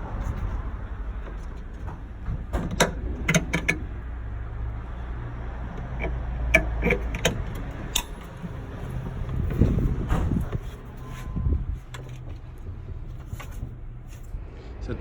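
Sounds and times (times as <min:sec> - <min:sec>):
metallic clicks of hand tools: 0:05.8 - 0:08.4.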